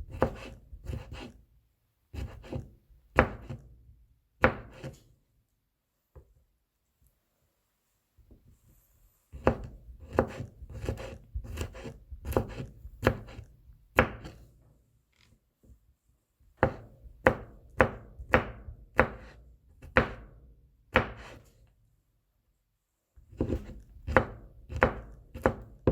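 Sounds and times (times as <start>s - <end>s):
knife chopping on cutting board: 0.1s - 1.3s, 2.2s - 3.7s, 4.4s - 5.0s, 9.4s - 14.4s, 16.6s - 20.3s, 20.9s - 21.4s, 23.3s - 25.9s.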